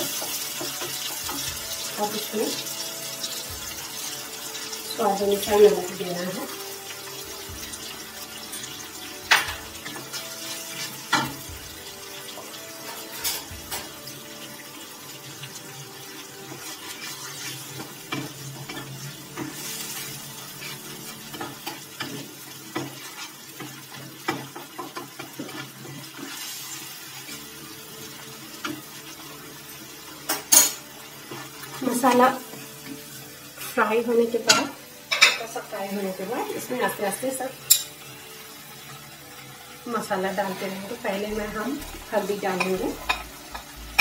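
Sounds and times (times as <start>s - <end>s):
paste sizzling in a pan: 0.0s - 44.0s
spatula scraping a pan: 16.2s - 27.5s, 40.4s - 44.0s.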